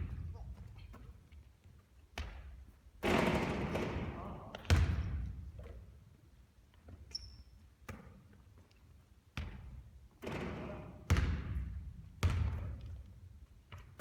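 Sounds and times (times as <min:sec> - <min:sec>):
basketball bouncing on court: 0:02.1 - 0:05.8, 0:09.4 - 0:14.0.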